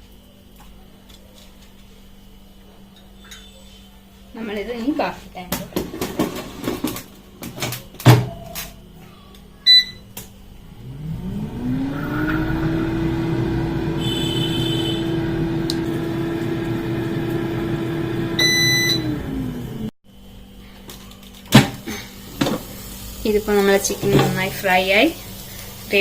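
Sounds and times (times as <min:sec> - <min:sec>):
air fryer fan whine and hum: 0:02.0 - 0:26.0
air fryer beeps: 0:09.6 - 0:10.1, 0:11.3 - 0:19.7.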